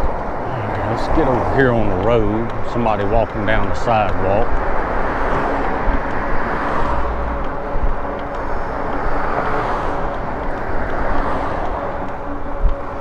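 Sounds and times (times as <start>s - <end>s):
faint even hum: 0.0s - 4.9s
wind and road noise: 0.0s - 13.0s.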